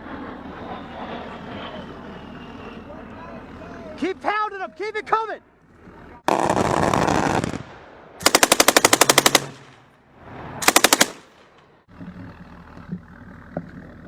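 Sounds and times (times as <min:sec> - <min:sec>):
machine-gun fire in bursts: 0:06.3 - 0:09.8, 0:10.6 - 0:11.3.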